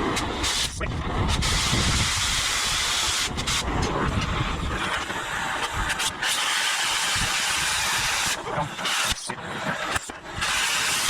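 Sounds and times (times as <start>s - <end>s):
wind rumbling on microphone: 0.0s - 6.4s
cutting torch hissing: 0.0s - 11.0s.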